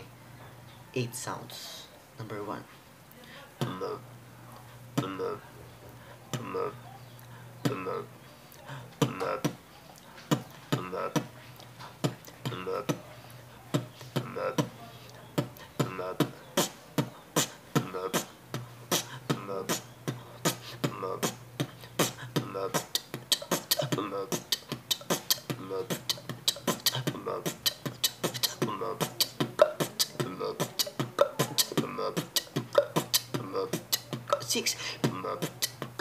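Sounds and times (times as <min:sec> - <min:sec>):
person beatboxing: 0:03.6 - 0:04.0, 0:05.0 - 0:05.4, 0:06.3 - 0:06.8, 0:07.6 - 0:08.1, 0:08.9 - 0:09.6, 0:10.2 - 0:13.0, 0:13.7 - 0:14.8, 0:15.4 - 0:36.0.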